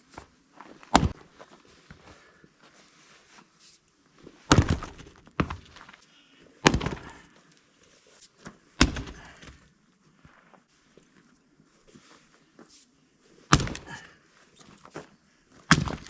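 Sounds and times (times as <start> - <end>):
firewood thunking: 0.8 - 1.2, 4.5 - 6.0, 6.6 - 7.3, 8.8 - 9.6, 13.5 - 14.1, 15.7 - 16.0.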